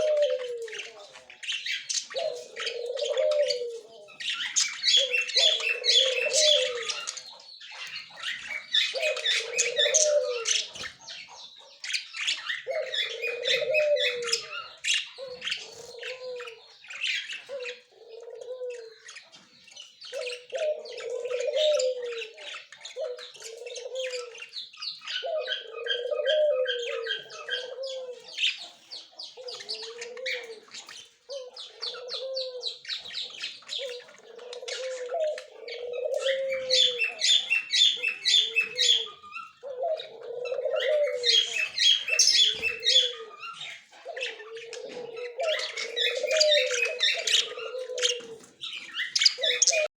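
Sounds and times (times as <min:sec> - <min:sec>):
low cooing call: 0:00.0 - 0:01.1, 0:02.2 - 0:04.1, 0:05.0 - 0:07.1, 0:08.9 - 0:10.6, 0:12.6 - 0:16.6, 0:17.5 - 0:19.0, 0:20.2 - 0:24.4, 0:25.1 - 0:28.4, 0:29.4 - 0:30.7, 0:31.3 - 0:32.8, 0:33.8 - 0:49.9
budgerigars chattering: 0:00.0 - 0:17.9, 0:18.7 - 0:49.9.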